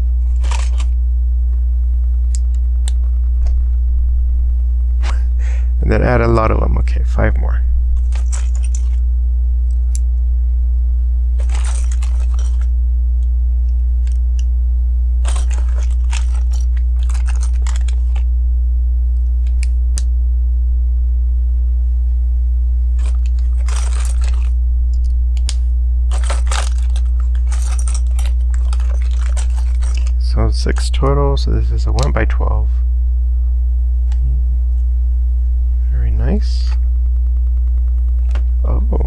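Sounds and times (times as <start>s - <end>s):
loud steady low hum: 0.0s - 39.0s
plastic bricks clicking and rattling: 0.4s - 1.0s, 11.4s - 12.7s, 15.3s - 18.2s, 23.0s - 30.2s.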